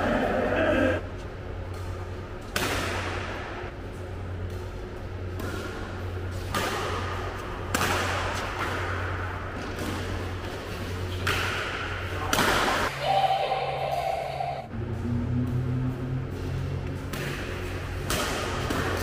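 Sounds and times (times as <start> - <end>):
steady low hum: 0.0 - 19.0
racket hitting shuttlecock: 1.7 - 3.6, 4.4 - 13.0, 16.3 - 19.0.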